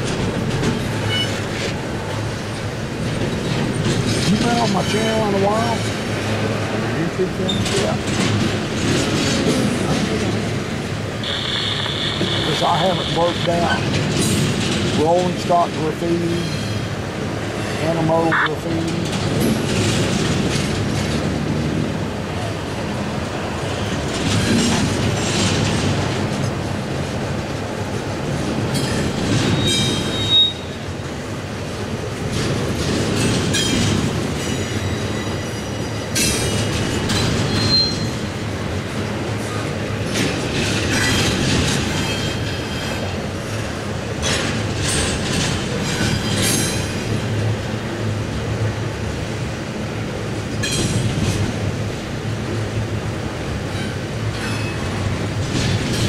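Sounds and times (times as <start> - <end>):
freight train wheels rumbling: 0.0 - 56.0
wheel squeals: 1.0 - 1.5, 29.4 - 30.8, 37.4 - 38.2.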